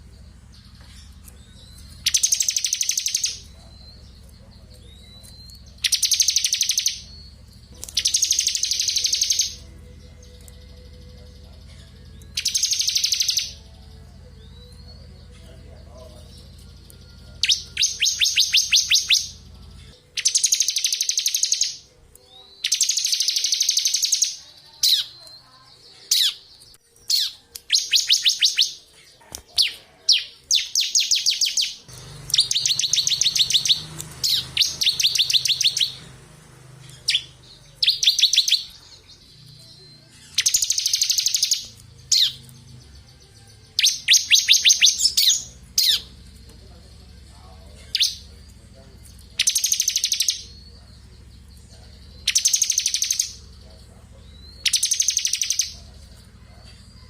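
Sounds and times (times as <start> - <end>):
bird high-pitched trills: 0.0 - 57.0
faint low hum: 0.0 - 57.0.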